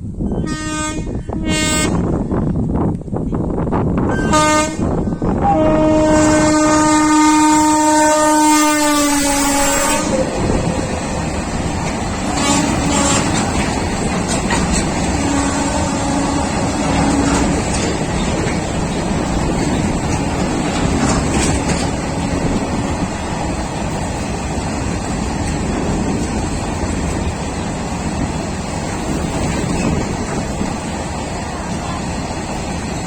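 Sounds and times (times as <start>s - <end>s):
train wheels rumbling on rails: 0.0s - 33.0s
wheels clicking over rail joints: 9.3s - 33.0s.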